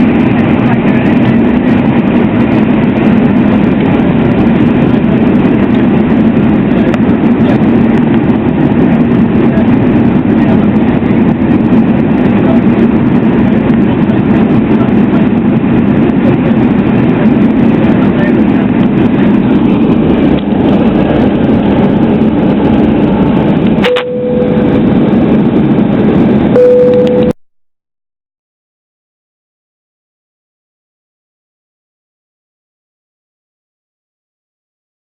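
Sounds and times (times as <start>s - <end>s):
loud mechanical drone: 0.0s - 27.4s.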